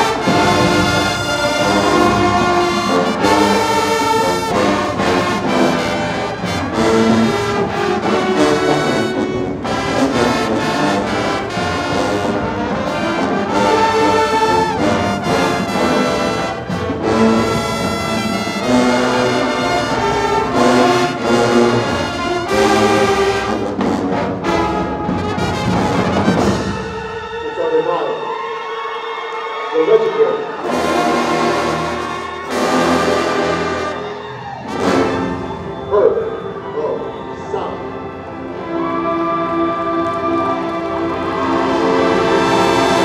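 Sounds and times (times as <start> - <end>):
drums: 0.0 - 27.4
trombones and trumpets: 0.0 - 28.9, 29.6 - 43.0
marching band playing: 0.0 - 43.0.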